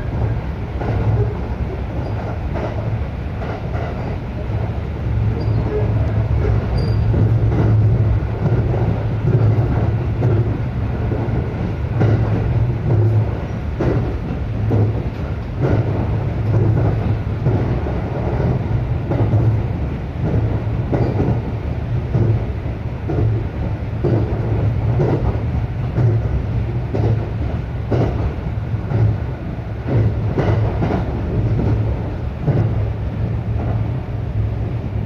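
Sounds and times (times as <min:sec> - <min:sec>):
electric train rumbling: 0:00.0 - 0:35.0.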